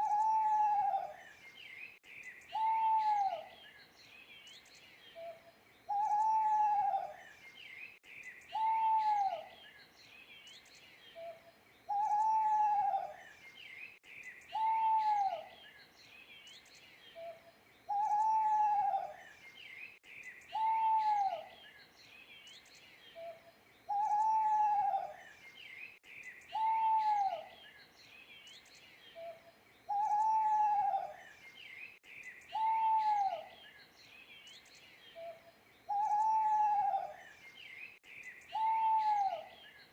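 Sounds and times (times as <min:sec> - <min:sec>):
owl hooting: 0:00.0 - 0:01.2, 0:02.5 - 0:03.5, 0:05.9 - 0:07.2, 0:08.5 - 0:09.5, 0:11.2 - 0:13.2, 0:14.5 - 0:15.5, 0:17.2 - 0:19.2, 0:20.5 - 0:21.5, 0:23.2 - 0:25.2, 0:26.5 - 0:27.5, 0:29.2 - 0:31.2, 0:32.5 - 0:33.6, 0:35.2 - 0:37.2, 0:38.5 - 0:39.6
small birds chirping: 0:00.0 - 0:39.9.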